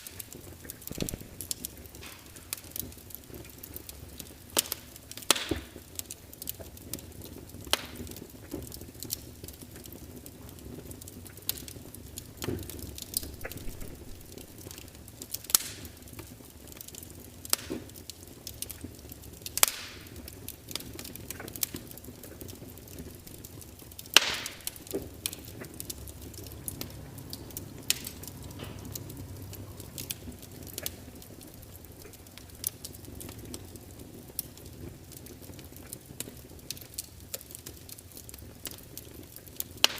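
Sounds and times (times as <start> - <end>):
fire hissing: 0.0 - 6.6, 11.3 - 16.2, 19.5 - 39.9
wood crackling and popping: 0.0 - 39.9.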